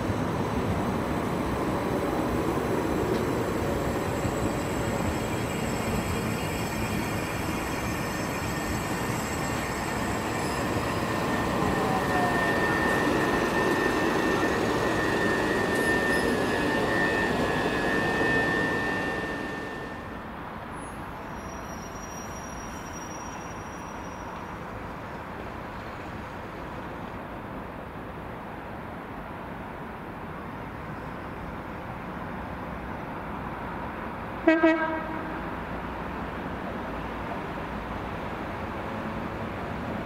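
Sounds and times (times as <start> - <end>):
steady high squeal: 0.0 - 24.9
electric train rumbling: 0.0 - 27.3.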